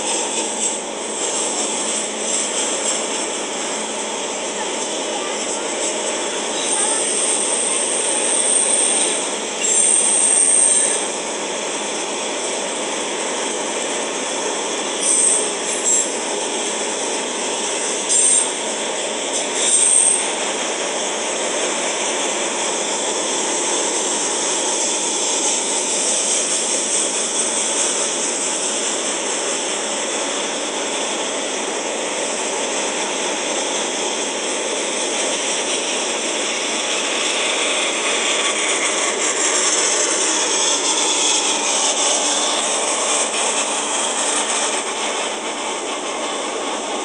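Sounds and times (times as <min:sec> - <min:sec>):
freight train wheels rumbling: 0:00.0 - 0:47.0
high-pitched wheel squeaks: 0:06.6 - 0:11.1, 0:15.0 - 0:16.2.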